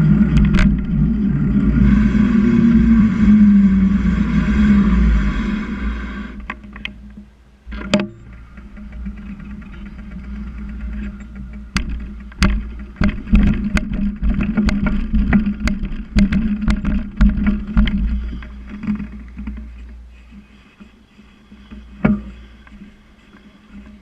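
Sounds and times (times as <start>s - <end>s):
wind and rolling noise: 0.0s - 24.0s
bicycle knocks and rattles: 0.2s - 1.1s, 6.4s - 20.9s, 21.6s - 24.0s.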